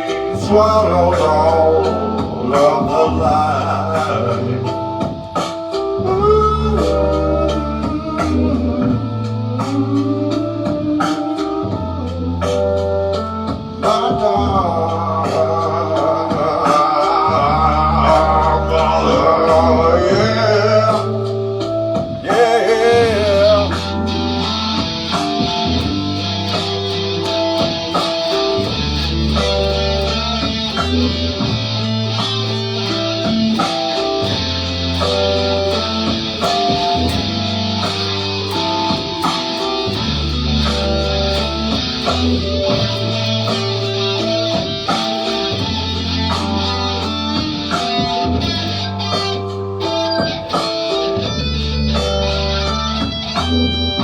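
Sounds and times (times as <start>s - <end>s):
low bass notes: 0.0s - 54.0s
picked guitar notes: 13.2s - 54.0s
steady ticking beat: 23.0s - 48.9s.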